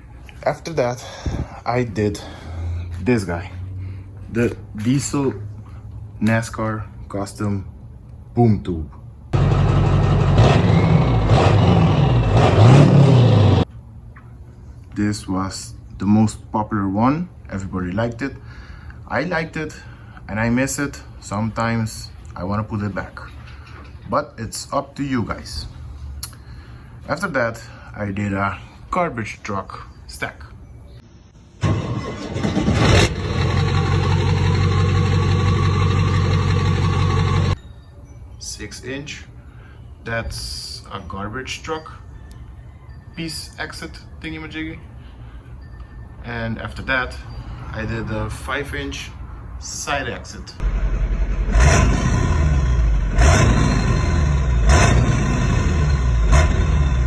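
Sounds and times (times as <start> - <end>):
diesel engine revving: 2.1 - 5.8, 9.4 - 13.7, 31.6 - 37.6, 50.6 - 57.0.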